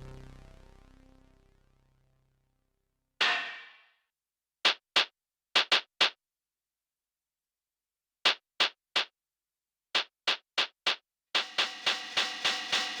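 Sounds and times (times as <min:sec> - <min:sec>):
drum machine percussive hits: 0:03.2 - 0:03.8, 0:10.0 - 0:13.0.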